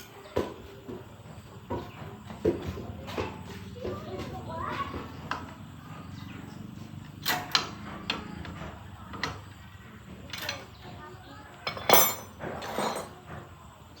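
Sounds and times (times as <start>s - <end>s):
tools clinking on metal: 10.3s - 10.7s, 11.6s - 13.2s.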